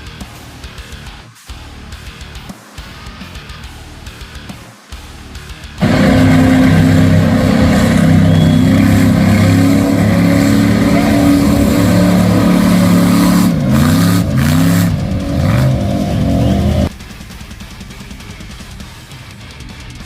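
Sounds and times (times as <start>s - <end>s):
truck engine revving: 5.8s - 16.9s.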